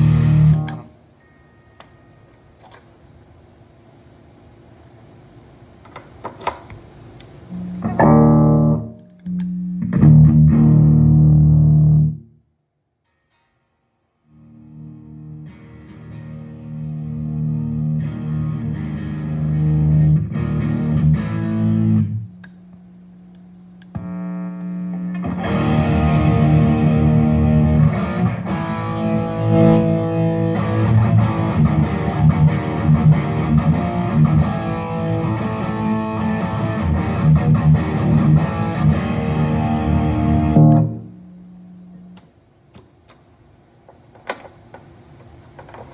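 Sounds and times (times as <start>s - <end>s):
distorted electric guitar: 0.0s - 0.9s, 7.5s - 12.3s, 14.3s - 22.3s, 23.9s - 42.0s.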